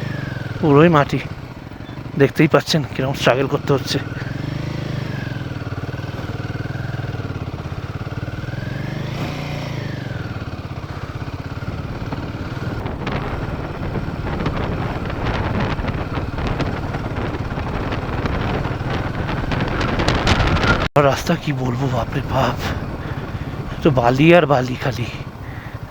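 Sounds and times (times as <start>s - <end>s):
motorcycle engine labouring: 0.0s - 25.9s.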